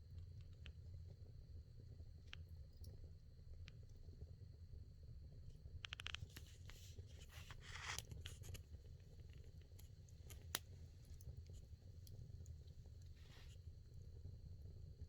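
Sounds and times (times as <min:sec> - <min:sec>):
firewood crackling and popping: 0:07.6 - 0:13.4.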